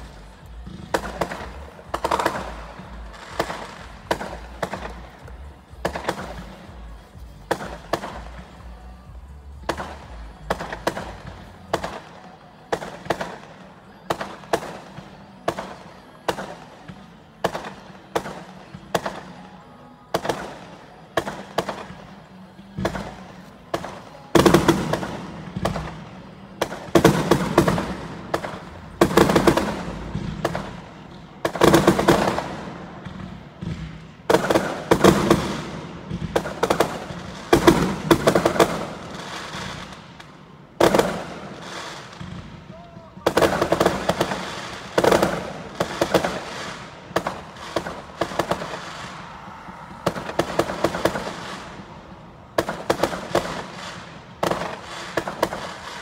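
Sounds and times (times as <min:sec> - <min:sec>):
crackling firework bursts: 0:00.0 - 0:56.0
firework bangs: 0:00.0 - 0:56.0.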